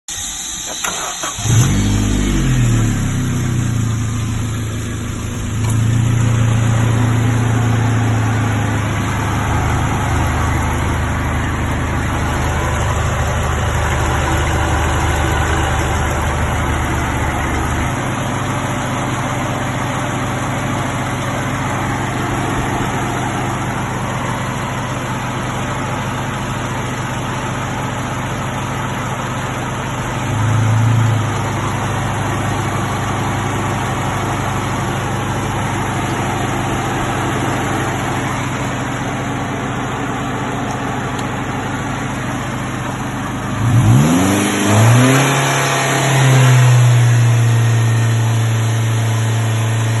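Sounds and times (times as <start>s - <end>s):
petrol engine idling: 0.1s - 43.6s.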